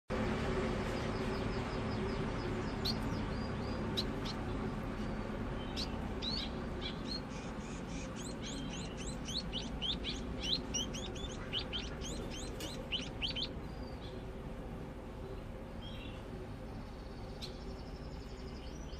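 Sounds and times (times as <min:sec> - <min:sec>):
bird high chirps: 0:00.9 - 0:14.2.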